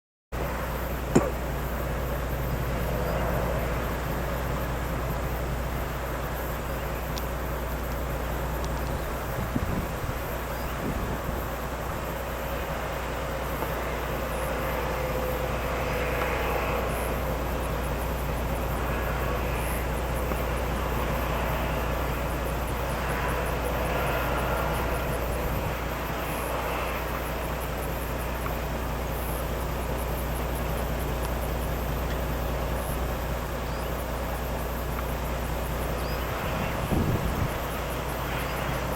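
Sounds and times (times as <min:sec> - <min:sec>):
truck diesel engine droning: 0:00.4 - 0:38.9.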